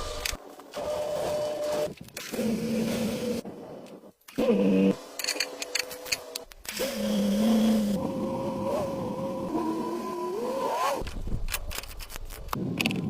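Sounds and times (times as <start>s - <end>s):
small electric motor whining: 4.3s - 11.1s.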